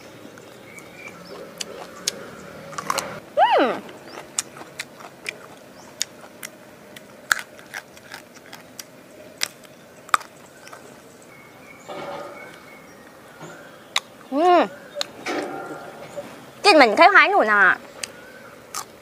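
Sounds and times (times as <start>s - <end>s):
person chewing crunchy food: 0.6s - 3.2s, 3.8s - 11.1s, 18.0s - 19.0s.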